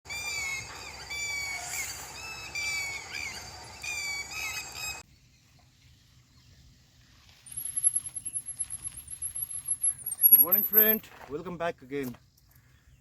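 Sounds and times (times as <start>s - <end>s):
bird squawking: 0.1s - 5.0s.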